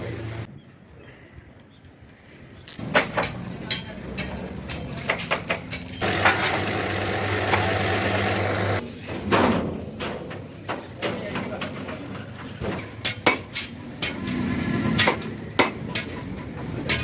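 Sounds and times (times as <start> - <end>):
engine running: 6.0 - 8.8
metal knocks and clicks: 9.3 - 17.0.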